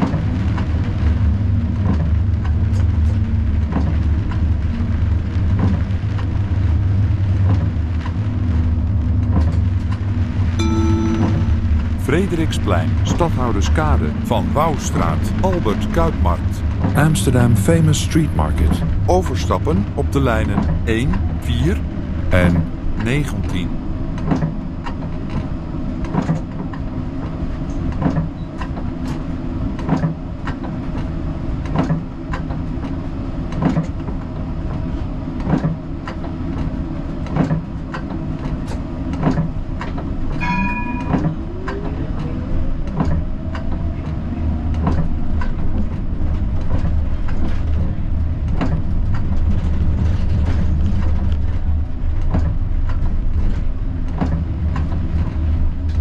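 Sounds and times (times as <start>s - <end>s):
short electronic chime: 10.6s - 12.0s
tram wheels clicking over rail joints: 24.2s - 56.0s.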